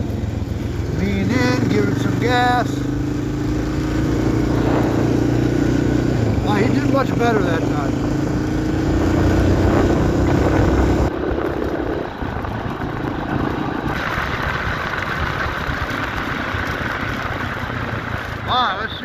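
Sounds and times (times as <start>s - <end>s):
motorcycle engine under throttle: 0.0s - 19.0s
wind rush: 2.3s - 18.6s.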